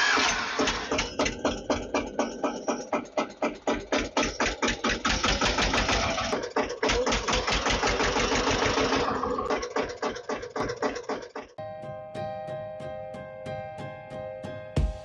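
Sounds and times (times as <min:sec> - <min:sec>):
tractor engine chugging: 0:00.0 - 0:11.6.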